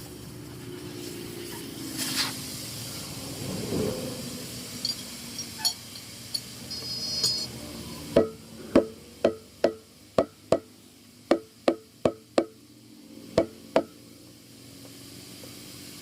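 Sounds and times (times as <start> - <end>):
hammer striking metal: 8.2 - 10.7, 11.3 - 12.6, 13.4 - 14.0.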